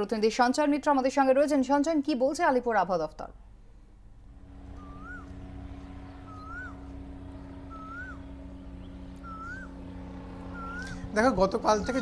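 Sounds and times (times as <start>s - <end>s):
steady low hum: 3.2s - 12.0s
bird whistling call: 4.8s - 5.4s, 6.1s - 6.9s, 7.6s - 9.8s, 10.5s - 11.1s.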